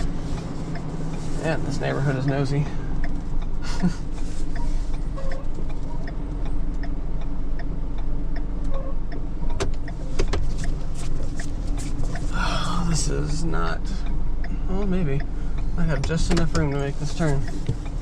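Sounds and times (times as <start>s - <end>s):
truck engine running: 0.0s - 18.0s.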